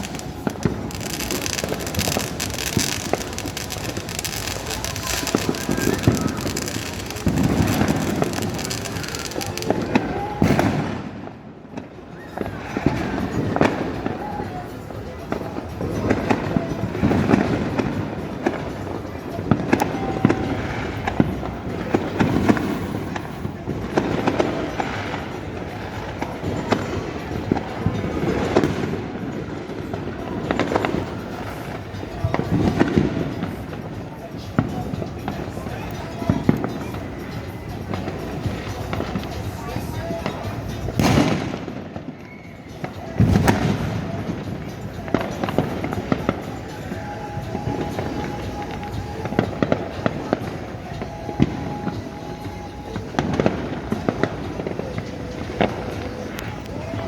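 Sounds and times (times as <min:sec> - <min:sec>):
fireworks bangs: 0:00.0 - 0:14.1, 0:22.0 - 0:52.1
fireworks crackling: 0:00.0 - 0:57.0.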